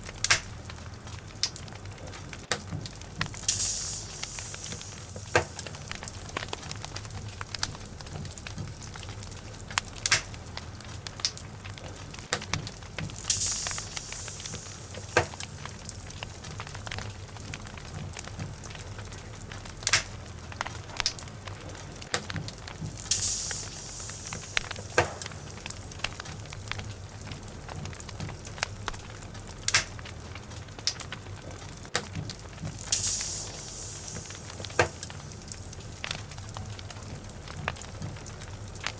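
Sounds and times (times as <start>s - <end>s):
log fire crackling and popping: 0.0s - 38.9s
high hissing bursts: 3.2s - 8.1s, 13.1s - 17.7s, 22.8s - 27.2s, 32.7s - 36.5s.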